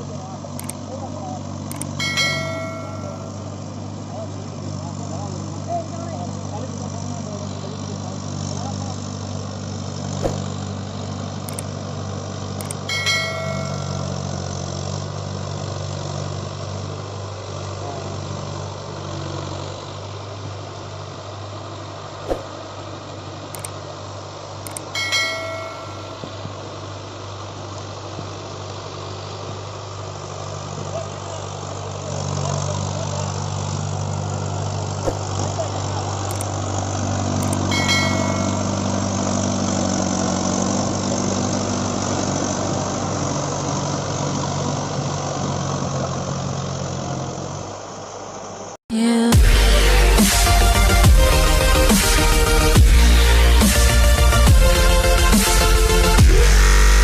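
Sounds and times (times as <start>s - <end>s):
tractor diesel engine running: 0.0s - 57.0s
sharp click: 0.6s - 0.8s, 1.7s - 2.0s, 10.2s - 10.5s, 11.4s - 11.7s, 12.6s - 12.9s, 22.2s - 22.5s, 23.5s - 23.8s, 24.6s - 24.9s, 36.2s - 36.5s, 37.4s - 38.2s.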